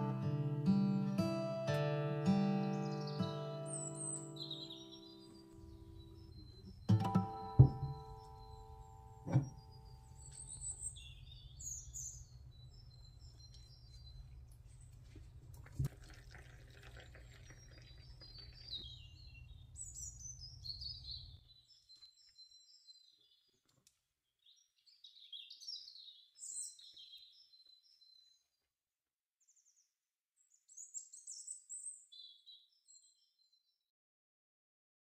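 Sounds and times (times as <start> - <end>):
small birds twittering: 2.6 - 15.1, 16.0 - 23.7, 24.4 - 28.6, 30.4 - 33.7.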